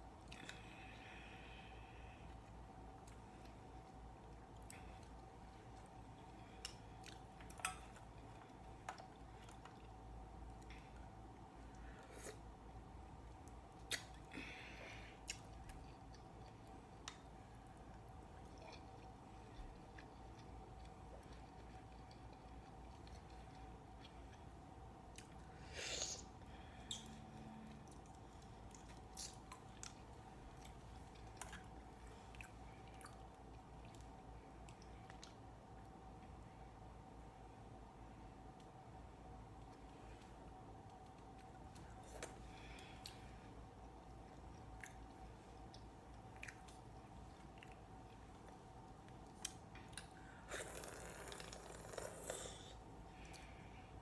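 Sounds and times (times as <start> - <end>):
low steady hum: 0.0 - 54.0
wet chewing and squishing: 26.8 - 36.0, 40.8 - 52.4
wet chewing: 27.7 - 35.4
mouth clicks and squishes: 28.8 - 29.7.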